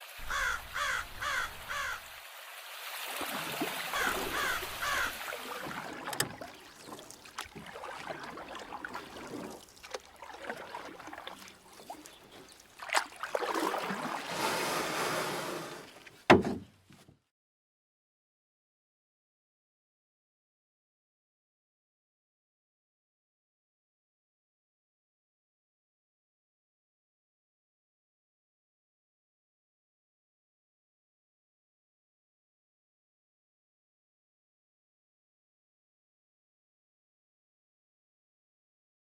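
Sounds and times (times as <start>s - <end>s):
river water: 0.0s - 16.7s
bird calling: 0.2s - 2.1s, 3.8s - 12.8s
knocks: 16.3s - 16.7s.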